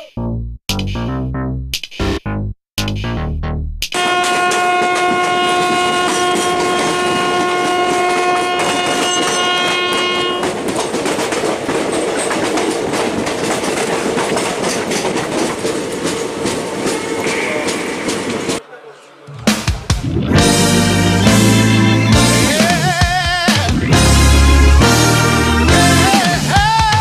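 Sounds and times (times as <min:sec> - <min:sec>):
train horn long blast: 0:04.0 - 0:10.6
train wheels clattering over rail joints: 0:04.3 - 0:18.6.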